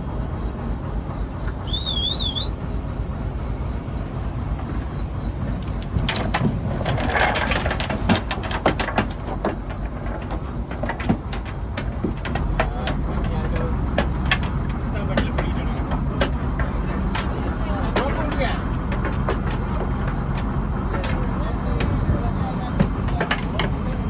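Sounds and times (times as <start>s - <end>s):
boat engine low rumble: 0.0s - 24.0s
short warbling whistle: 1.6s - 2.6s
knocks and clatter: 4.5s - 24.0s.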